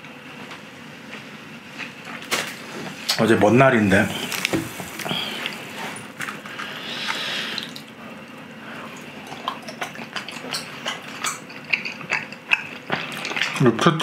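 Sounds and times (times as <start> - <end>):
wet chewing and smacking: 8.8 - 13.8.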